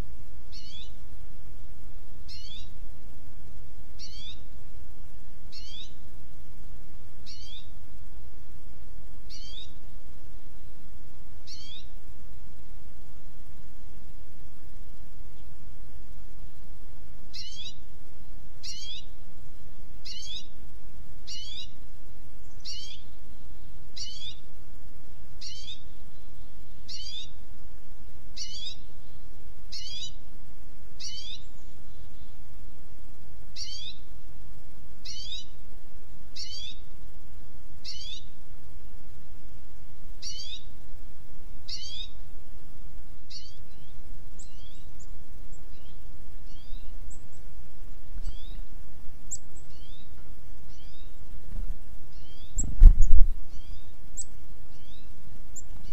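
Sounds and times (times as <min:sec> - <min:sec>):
steady low rumble: 0:45.2 - 0:55.4.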